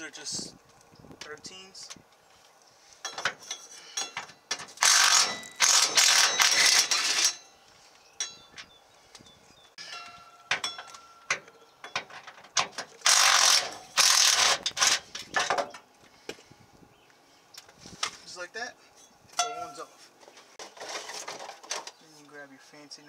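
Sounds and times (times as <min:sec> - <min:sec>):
metal clinks: 0:03.0 - 0:07.6, 0:08.2 - 0:08.7, 0:09.8 - 0:12.4
cordless impact wrench running: 0:04.8 - 0:07.4, 0:13.0 - 0:15.0.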